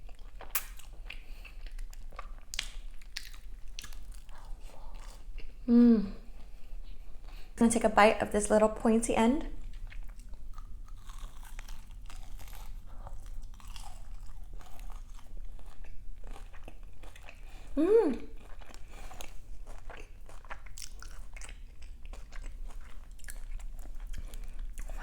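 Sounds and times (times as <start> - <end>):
crunchy bites and chewing: 0.0 - 5.5, 9.7 - 17.5, 18.3 - 25.0
person humming: 5.7 - 6.2, 17.8 - 18.3.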